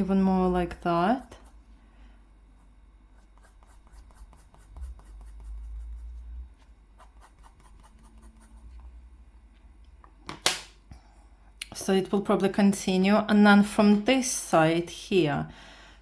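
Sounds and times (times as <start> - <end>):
pencil scratching on paper: 0.0 - 1.7, 2.6 - 8.9.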